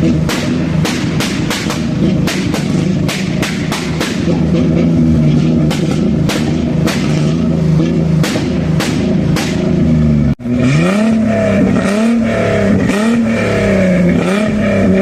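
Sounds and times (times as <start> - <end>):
car engine running loudly: 0.0 - 15.0
sharp cracks: 8.2 - 9.8.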